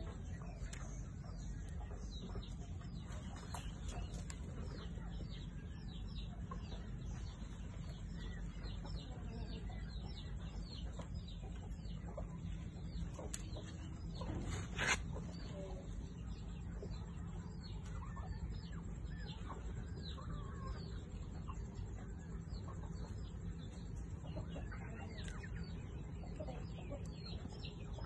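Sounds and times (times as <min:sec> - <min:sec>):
low background rumble: 0:00.0 - 0:28.0
small birds chirping: 0:00.0 - 0:28.0.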